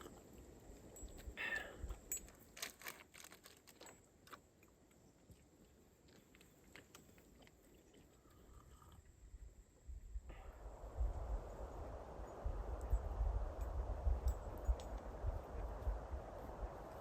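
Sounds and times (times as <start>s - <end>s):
faint crunching and clicking: 0.0s - 9.2s.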